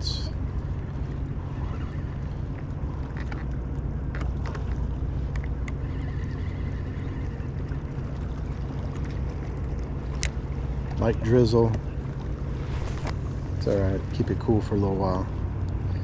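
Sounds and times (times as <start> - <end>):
boat engine rumbling: 0.0 - 16.0
faint light ticks: 10.1 - 11.0.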